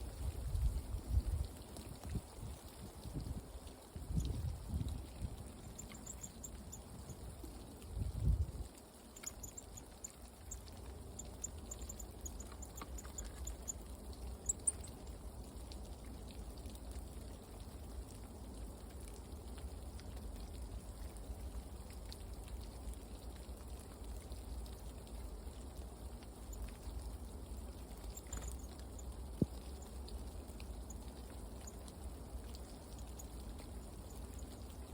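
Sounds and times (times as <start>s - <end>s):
high thin bird chirps: 5.6s - 7.2s, 9.2s - 10.6s, 11.2s - 13.8s, 14.4s - 15.0s.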